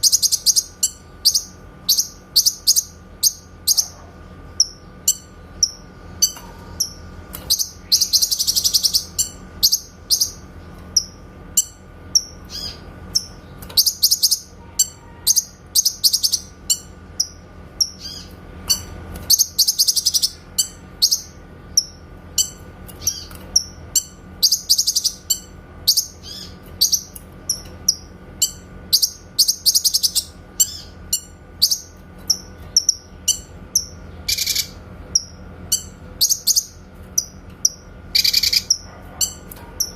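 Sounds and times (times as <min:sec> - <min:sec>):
bird trill: 0:00.0 - 0:39.9
songbird calling with sharp notes: 0:11.0 - 0:18.4.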